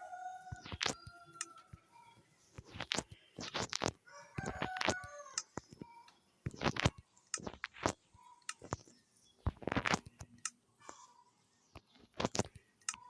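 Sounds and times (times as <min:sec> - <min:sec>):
small hard parts clicking: 0:02.6 - 0:11.0, 0:11.8 - 0:13.0.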